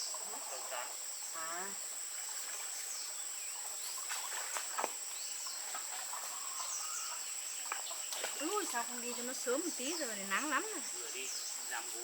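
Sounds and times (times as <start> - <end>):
faint bird chirps: 0.0 - 12.0
insects droning: 0.0 - 12.0.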